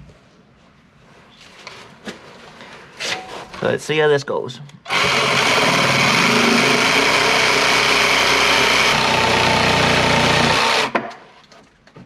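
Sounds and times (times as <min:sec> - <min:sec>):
electric jigsaw cutting wood: 0:04.9 - 0:11.1.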